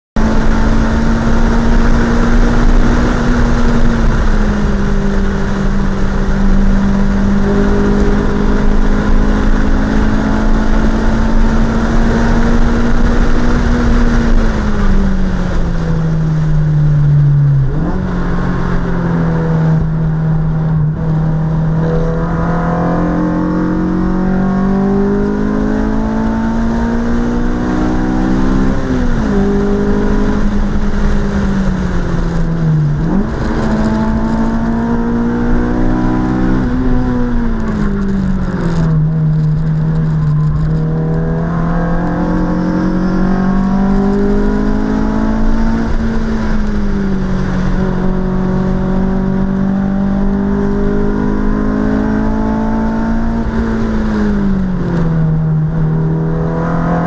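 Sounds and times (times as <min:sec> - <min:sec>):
car engine at speed: 0:00.2 - 0:57.0
road and wind noise: 0:00.2 - 0:57.0.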